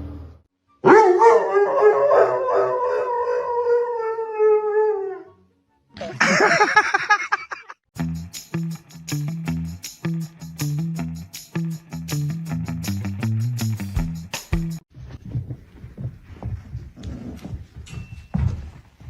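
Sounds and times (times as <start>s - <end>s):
dog howling: 0.9s - 5.4s
music: 5.3s - 6.5s, 8.0s - 14.8s.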